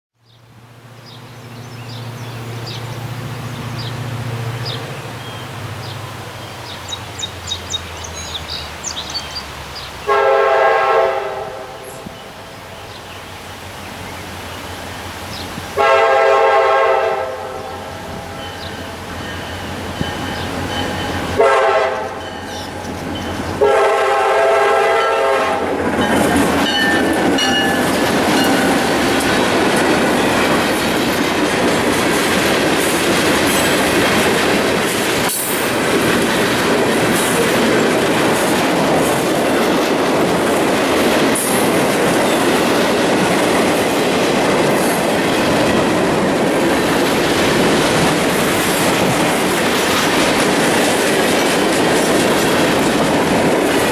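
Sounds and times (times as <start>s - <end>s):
freight train rumbling past: 0.2s - 53.9s
train air horn blasts: 10.0s - 12.2s, 15.8s - 18.5s, 21.3s - 22.5s, 23.6s - 25.8s
wheels clacking over rail joints: 18.0s - 23.9s, 25.2s - 53.9s.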